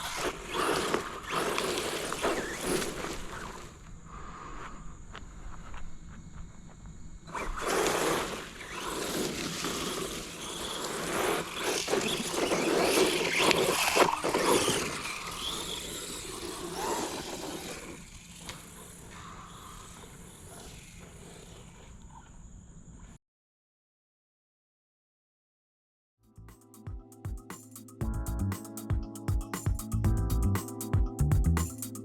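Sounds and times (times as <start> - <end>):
rc truck driving: 0.0 - 3.8, 7.3 - 22.4.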